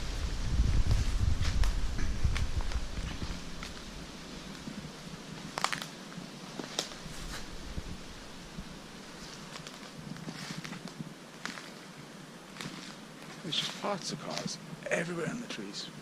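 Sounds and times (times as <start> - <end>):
wind rumble on microphone: 0.0 - 11.6
footsteps crunching through leaves: 0.0 - 11.9, 12.5 - 14.5
background hiss: 0.0 - 16.0
twigs snapping: 5.4 - 6.0, 6.6 - 7.9, 9.2 - 11.8, 12.5 - 13.4.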